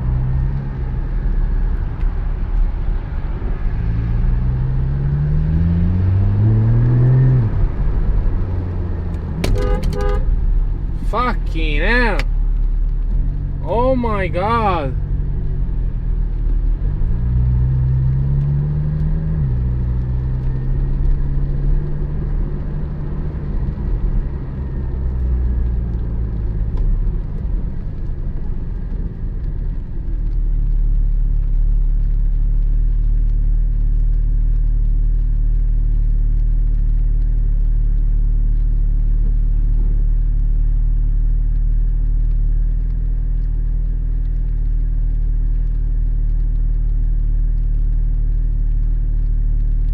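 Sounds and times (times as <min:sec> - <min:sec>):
sports car engine pulling hard: 0:02.9 - 0:11.2.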